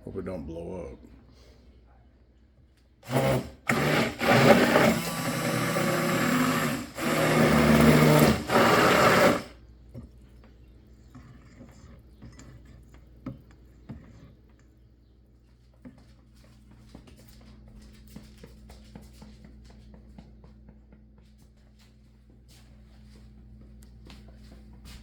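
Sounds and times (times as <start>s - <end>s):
electric blender running: 3.0s - 9.6s.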